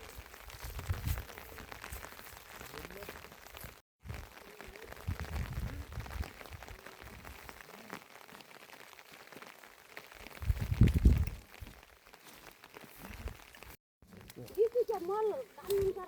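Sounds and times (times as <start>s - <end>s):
rain pattering: 0.0s - 16.0s
faint voices: 4.2s - 6.0s.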